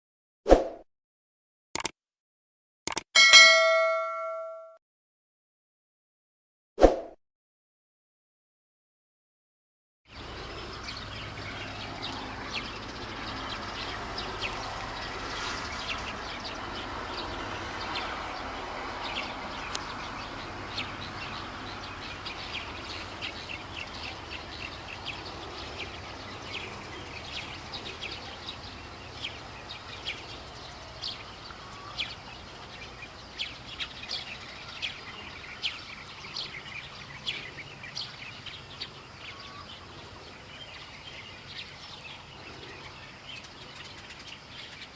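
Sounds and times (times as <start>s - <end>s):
high bird chirps: 2.9s - 4.7s
outdoor background noise: 10.1s - 44.9s.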